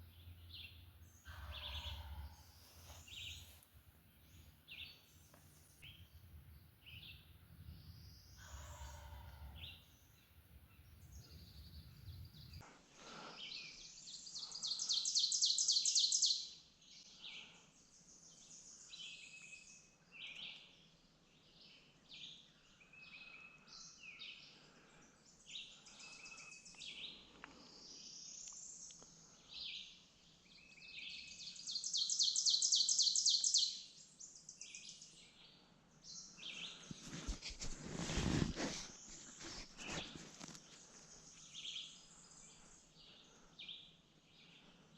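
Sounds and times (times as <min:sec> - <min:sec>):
songbirds singing: 0:00.0 - 0:12.6, 0:13.4 - 0:37.6, 0:38.2 - 0:44.9.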